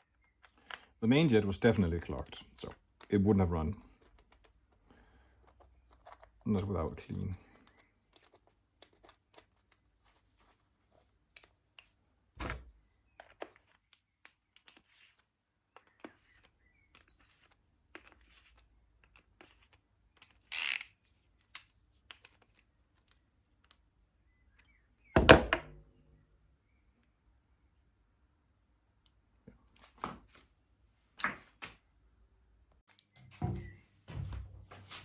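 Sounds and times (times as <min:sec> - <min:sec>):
thunk: 0:25.2 - 0:25.7, 0:33.4 - 0:34.5.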